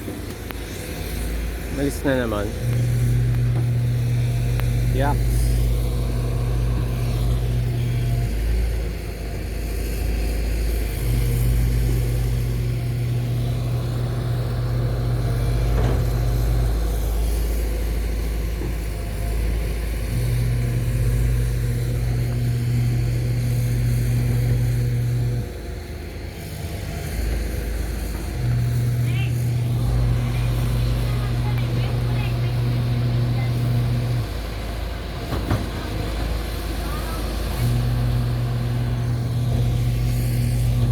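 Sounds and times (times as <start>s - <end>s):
excavator diesel engine rumbling: 0.0s - 40.9s
low machine hum: 0.0s - 40.9s.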